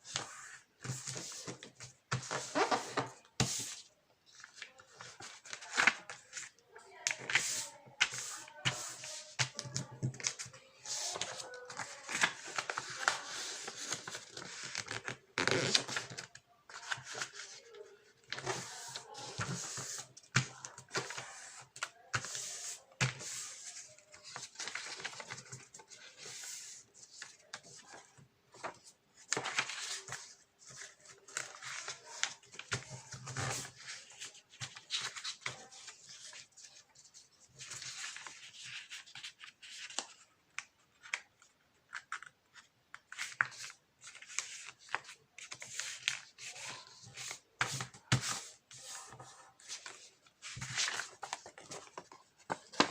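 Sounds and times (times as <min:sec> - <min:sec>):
paper rustling and crinkling: 0:00.1 - 0:52.9.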